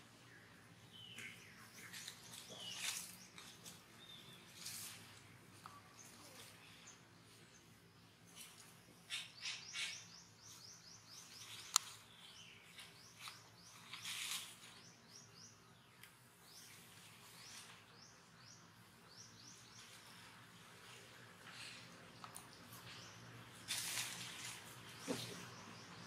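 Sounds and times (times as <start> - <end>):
small birds chirping: 0.0 - 26.0
rustling in dry leaves: 1.6 - 7.5, 10.4 - 15.0, 16.5 - 18.1, 19.4 - 26.0.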